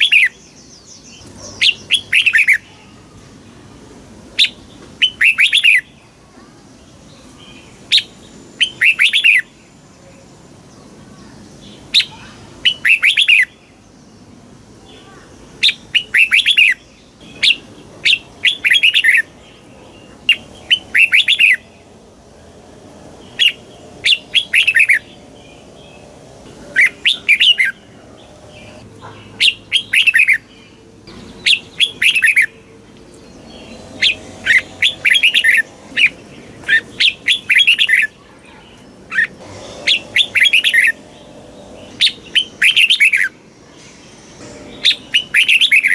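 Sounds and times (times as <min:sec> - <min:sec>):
bulbul singing: 0:15.0 - 0:45.9.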